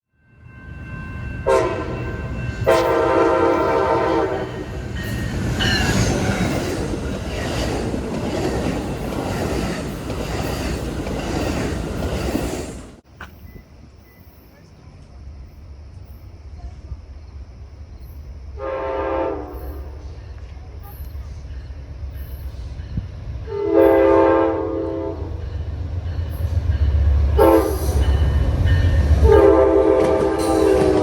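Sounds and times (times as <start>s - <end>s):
train rumble and rail clatter: 0.2s - 31.0s
locomotive air horn: 1.4s - 4.6s, 18.6s - 20.0s, 23.5s - 25.3s, 27.4s - 28.0s, 29.2s - 31.0s.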